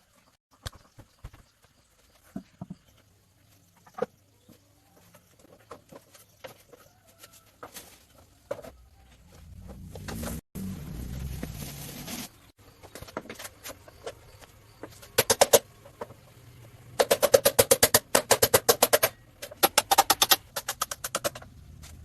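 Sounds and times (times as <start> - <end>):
tools and metal parts clicking: 17.0 - 21.5.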